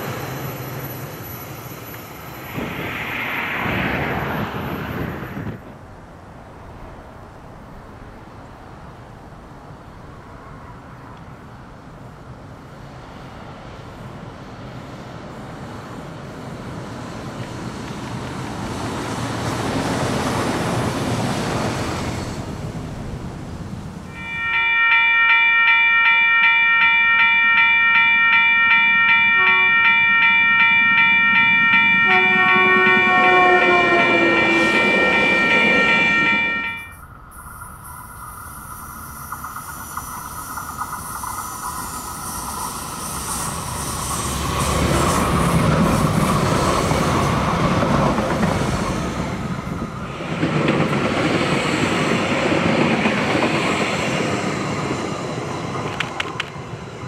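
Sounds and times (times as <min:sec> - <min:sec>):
diesel train passing: 0:00.0 - 0:57.0
crossing warning bell ringing: 0:24.1 - 0:37.2
train horn: 0:29.3 - 0:31.0, 0:31.6 - 0:37.0.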